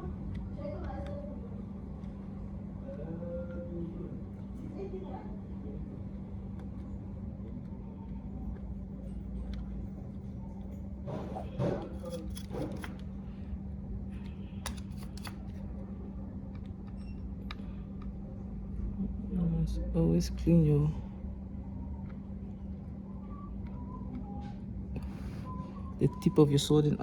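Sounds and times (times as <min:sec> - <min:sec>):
low electrical hum: 0:00.0 - 0:27.0
tools clicking and scraping: 0:11.1 - 0:13.0, 0:14.6 - 0:15.5.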